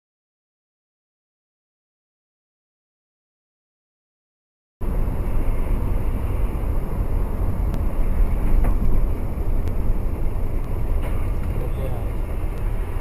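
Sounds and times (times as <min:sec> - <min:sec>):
car engine and road noise: 0:04.8 - 0:13.0.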